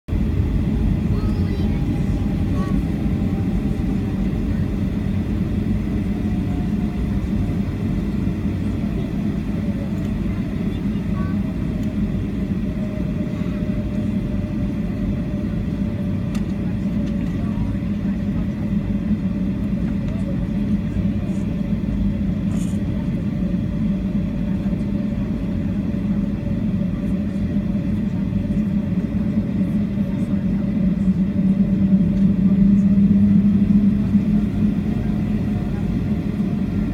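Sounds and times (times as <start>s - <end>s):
low hum: 0.1s - 10.1s
airliner engines rumbling: 0.1s - 36.9s.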